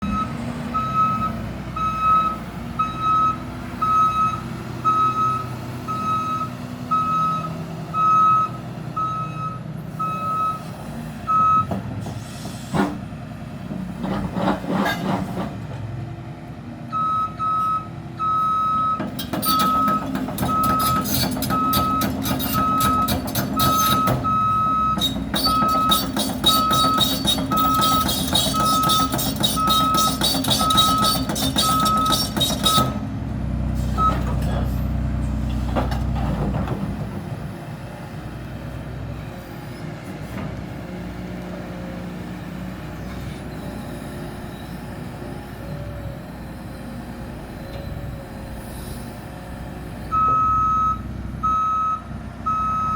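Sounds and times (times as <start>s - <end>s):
excavator travel alarm beeping: 0.0s - 10.7s, 11.3s - 11.7s, 16.9s - 33.0s, 34.0s - 34.4s, 50.1s - 52.9s
diesel engine running: 0.0s - 52.9s.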